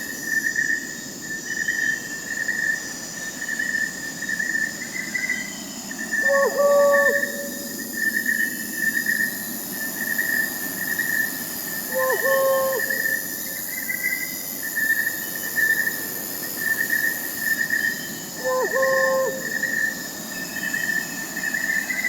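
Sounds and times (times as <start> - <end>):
crickets chirping: 0.0 - 22.0
insects trilling: 0.0 - 22.0
owl hoot: 6.2 - 8.0, 11.9 - 13.2, 18.4 - 19.9.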